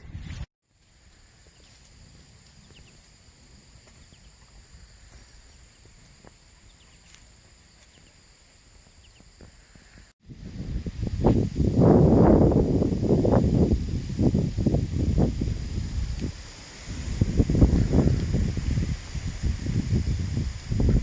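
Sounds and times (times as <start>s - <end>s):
faint bird chirps: 2.6s - 3.1s, 3.8s - 8.2s.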